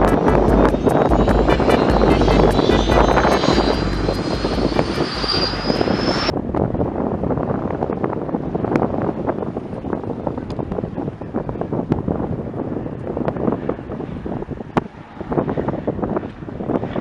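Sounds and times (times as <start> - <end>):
aircraft engine whining: 0.0 - 6.4
wind buffeting microphone: 0.0 - 17.0.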